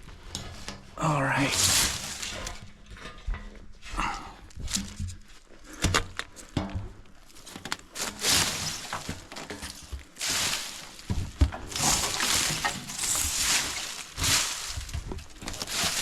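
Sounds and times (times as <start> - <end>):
rustling: 0.0 - 16.0.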